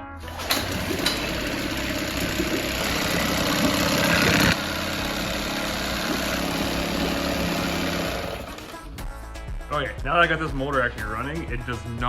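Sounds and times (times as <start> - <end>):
outboard motor running: 0.0 - 9.0.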